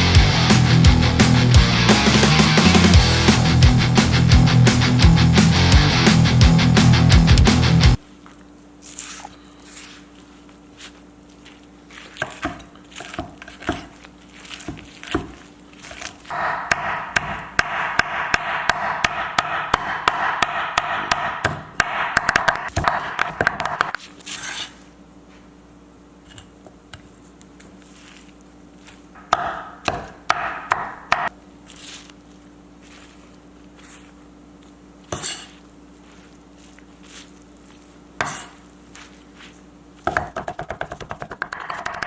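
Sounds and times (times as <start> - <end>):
knife chopping on cutting board: 12.0 - 24.7, 29.2 - 31.3, 35.1 - 35.6, 38.2 - 38.6, 40.0 - 42.0.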